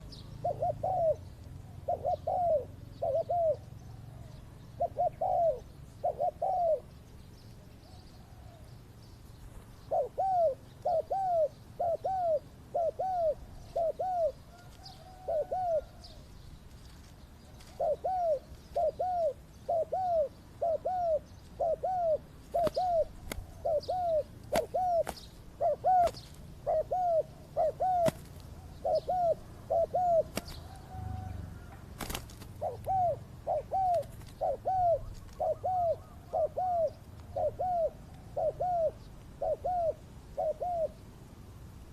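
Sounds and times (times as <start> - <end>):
dove cooing: 0.0 - 7.0, 9.7 - 16.4, 17.4 - 41.2.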